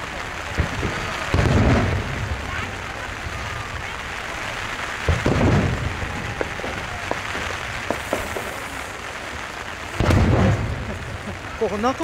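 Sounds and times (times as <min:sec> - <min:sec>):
wind and rain hiss: 0:00.0 - 0:12.0
firework shell bursting boom: 0:05.1 - 0:08.7, 0:10.0 - 0:11.0.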